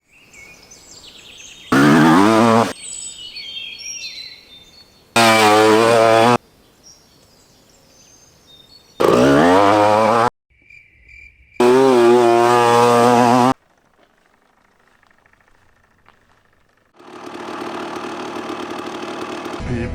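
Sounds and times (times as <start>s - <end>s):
faint birds chirping: 0.0s - 5.3s, 6.0s - 12.2s, 13.3s - 17.0s
two-stroke engine revving: 1.7s - 2.8s, 5.2s - 6.4s, 9.0s - 10.3s, 11.6s - 13.6s, 16.9s - 19.9s.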